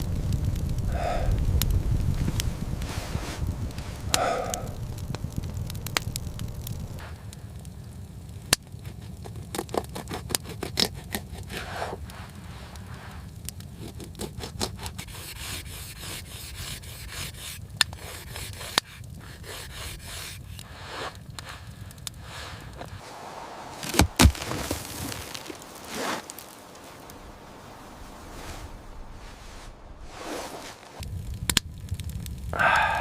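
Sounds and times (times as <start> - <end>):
steady low rumble: 0.0 - 9.2, 20.5 - 33.0
scraping and rubbing: 9.0 - 31.0.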